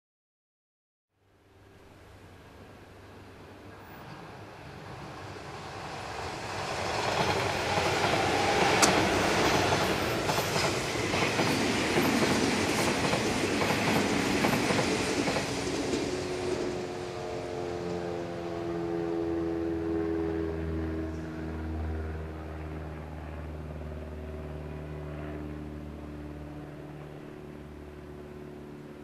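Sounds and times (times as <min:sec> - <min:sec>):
train wheels rumbling on rail: 0:03.7 - 0:18.6
wheels clacking over rail joints: 0:06.5 - 0:16.8.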